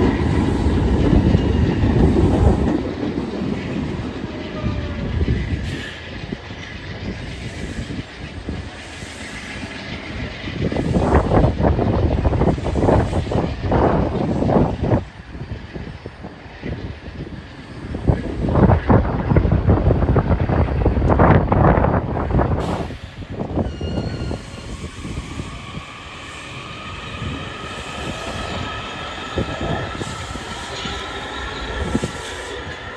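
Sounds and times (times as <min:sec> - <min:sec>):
wind buffeting microphone: 0:00.0 - 0:09.1, 0:09.9 - 0:32.9
passenger train rumbling: 0:00.0 - 0:32.9
wheels squealing: 0:07.7 - 0:13.0.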